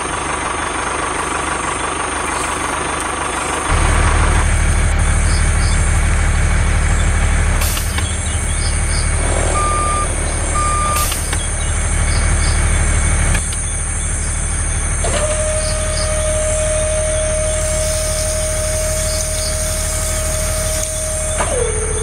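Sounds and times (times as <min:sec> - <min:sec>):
vehicle engine rumbling: 0:00.0 - 0:22.0
short beeps: 0:09.5 - 0:11.2.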